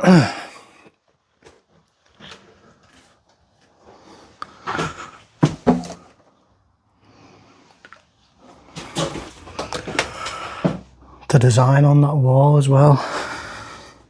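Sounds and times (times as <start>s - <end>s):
knocks and handling noises: 4.6s - 6.3s.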